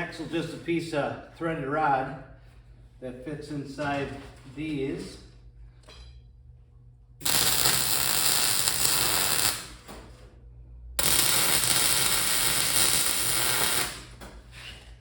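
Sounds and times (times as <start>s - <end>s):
steady low hum: 0.0s - 15.0s
welding arc crackling: 7.2s - 9.9s, 11.0s - 14.2s.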